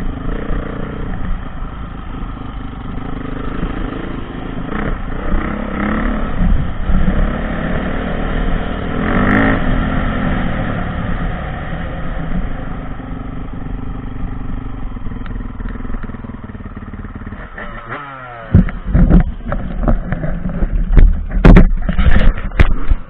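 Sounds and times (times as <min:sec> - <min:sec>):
dirt bike engine revving: 0:02.2 - 0:12.8, 0:15.4 - 0:20.8.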